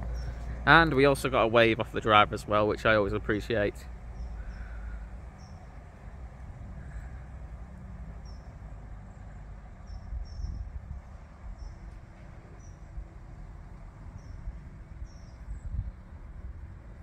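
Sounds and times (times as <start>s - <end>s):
bird chirping: 0.0s - 0.6s, 4.1s - 5.8s, 8.2s - 8.6s, 9.8s - 10.8s, 11.5s - 12.9s, 14.1s - 15.8s
steady low rumble: 0.0s - 17.0s.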